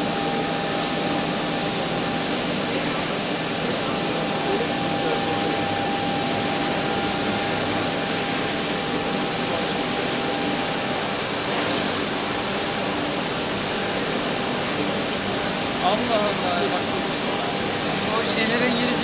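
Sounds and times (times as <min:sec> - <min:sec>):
wood router running: 0:00.0 - 0:11.3
thin high whine: 0:00.0 - 0:19.0.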